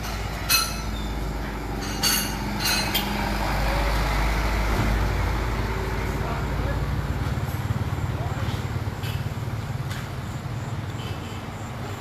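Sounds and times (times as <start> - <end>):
sharp metallic clinks: 0.0 - 3.2
vehicle engine running: 0.0 - 12.0.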